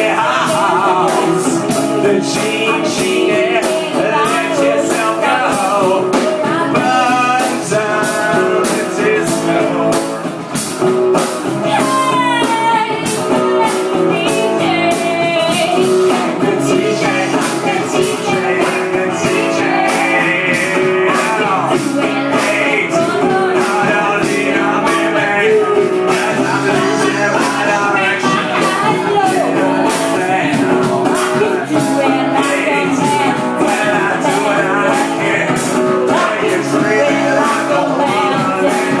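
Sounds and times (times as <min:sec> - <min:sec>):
drum beat: 0:00.0 - 0:39.0
live rock band playing: 0:00.0 - 0:39.0
person singing: 0:00.0 - 0:39.0.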